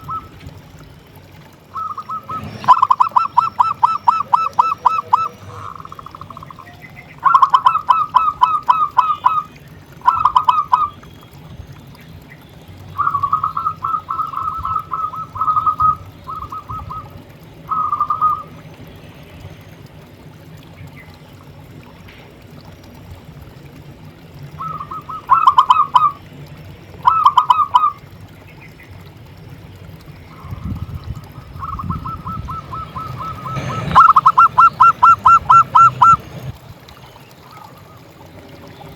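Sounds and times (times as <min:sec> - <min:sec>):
dove cooing: 0:00.0 - 0:00.4, 0:01.7 - 0:11.0, 0:13.0 - 0:18.6, 0:24.6 - 0:26.3, 0:27.0 - 0:28.0, 0:30.3 - 0:36.5.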